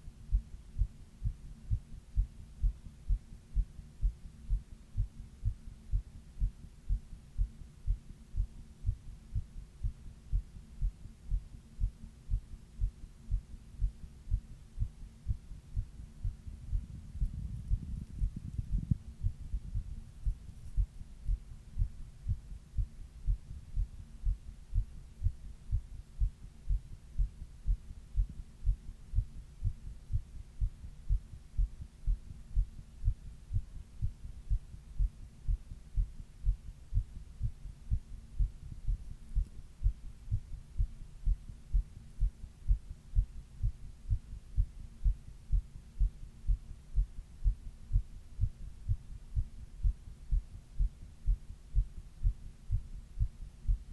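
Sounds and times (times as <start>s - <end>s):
faint steady hum: 0.0s - 53.9s
heartbeat thumps: 0.0s - 53.9s.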